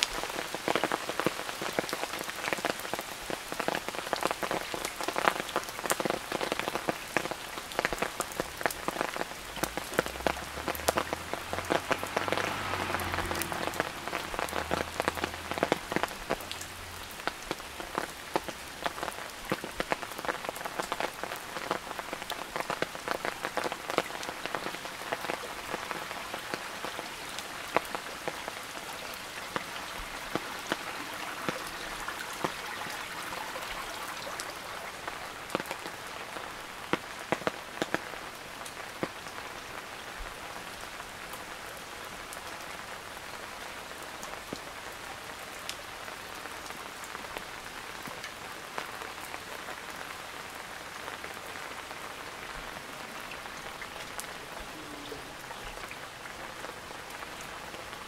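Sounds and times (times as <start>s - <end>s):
sharp raindrop taps: 0.0s - 39.2s
rain falling: 0.0s - 58.0s.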